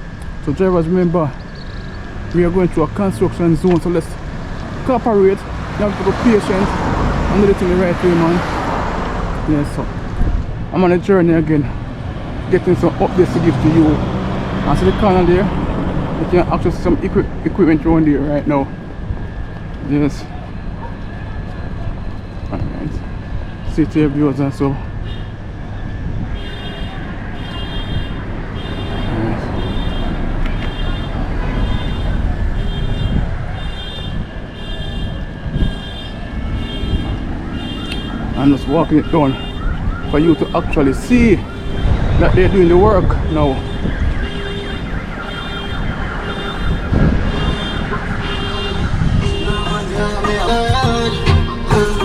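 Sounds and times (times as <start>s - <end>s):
engines rumbling: 0.0s - 52.0s
passing traffic: 0.0s - 52.0s
reversing alarm beeping: 31.7s - 42.8s, 43.5s - 52.0s.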